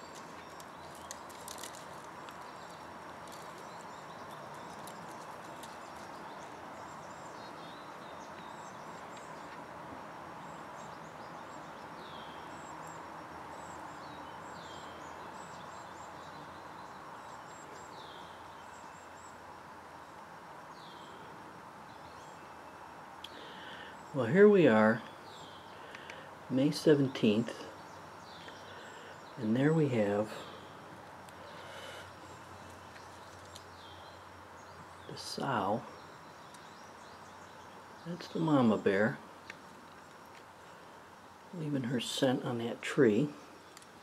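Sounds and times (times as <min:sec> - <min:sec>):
songbirds calling: 0:00.0 - 0:44.0
steady hiss: 0:00.0 - 0:44.0.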